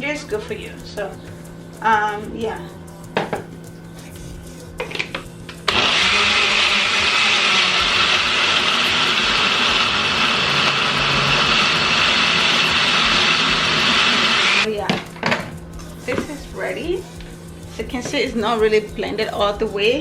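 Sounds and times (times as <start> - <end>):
blender running: 5.7 - 14.7.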